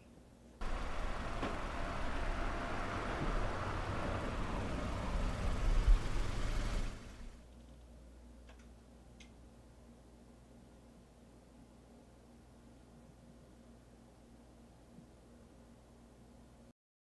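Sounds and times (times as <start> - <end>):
car engine running: 0.6 - 7.4.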